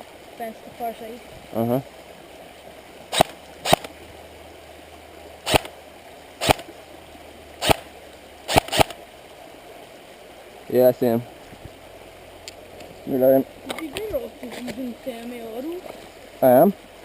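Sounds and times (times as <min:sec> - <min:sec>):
airsoft rifle shots: 0:03.1 - 0:03.9, 0:05.5 - 0:05.7, 0:06.4 - 0:06.7, 0:07.6 - 0:07.9, 0:08.5 - 0:09.0.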